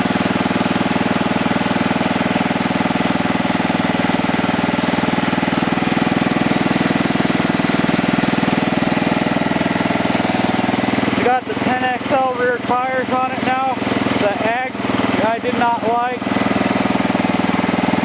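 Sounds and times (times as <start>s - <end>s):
small gas engine running: 0.0s - 18.0s.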